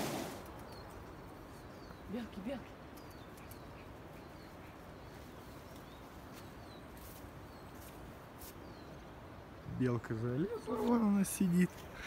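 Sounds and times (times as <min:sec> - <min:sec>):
steady rushing hiss: 0:00.0 - 0:01.7.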